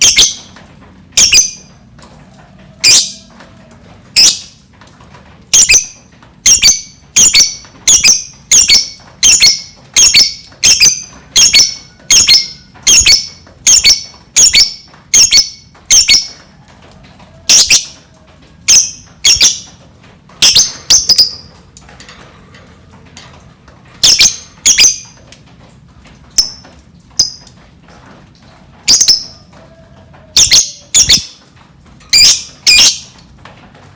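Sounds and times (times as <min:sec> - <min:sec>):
lovebird shrill calls: 0:06.5 - 0:16.3, 0:18.7 - 0:19.7, 0:24.0 - 0:25.0, 0:30.4 - 0:31.3, 0:32.1 - 0:33.1.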